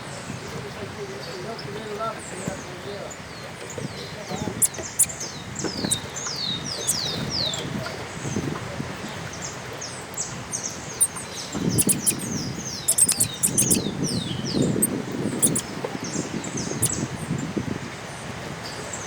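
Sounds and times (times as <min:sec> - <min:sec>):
small birds chirping: 0:01.6 - 0:07.6, 0:09.1 - 0:17.1
sharp clicks: 0:11.0 - 0:12.3, 0:12.9 - 0:13.8, 0:15.4 - 0:15.6.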